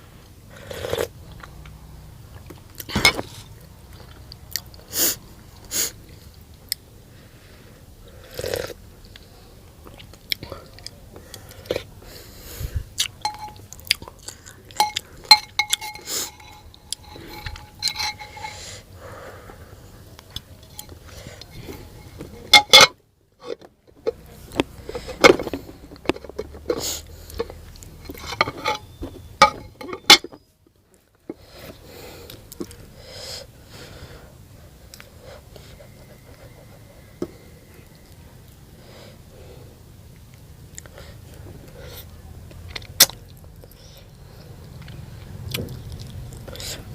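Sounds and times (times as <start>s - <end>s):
utensil clicks and clinks: 14.7s - 18.6s.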